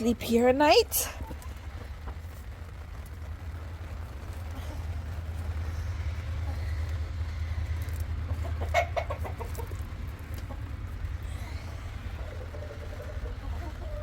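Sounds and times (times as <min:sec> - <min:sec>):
steady low rumble: 0:00.0 - 0:14.0
hen clucking: 0:05.9 - 0:14.0.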